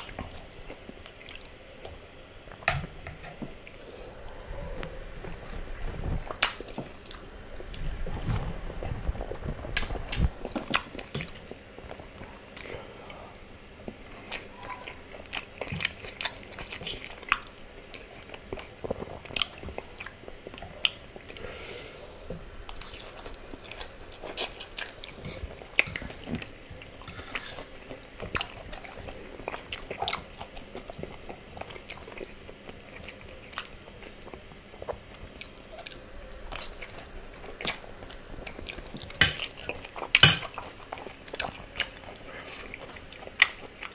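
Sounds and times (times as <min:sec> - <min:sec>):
chewing and wet mouth sounds: 0:00.0 - 0:02.1, 0:03.3 - 0:21.5, 0:22.6 - 0:43.9.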